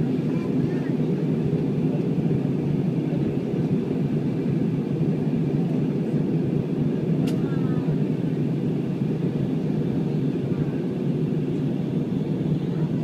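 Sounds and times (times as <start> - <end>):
airplane engine drone in cabin: 0.0 - 13.0
sharp click: 7.2 - 7.4.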